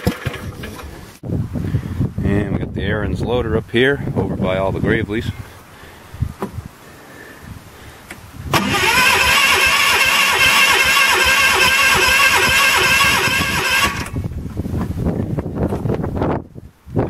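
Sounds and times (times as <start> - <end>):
electric starter cranking engine: 8.5 - 14.2.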